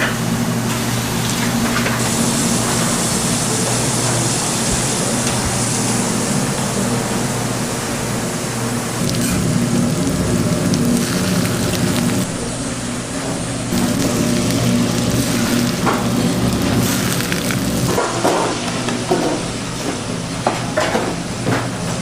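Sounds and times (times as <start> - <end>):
food sizzling on hot surface: 2.0 - 6.6, 8.9 - 12.3, 13.7 - 18.0
steady low hum: 5.8 - 18.0.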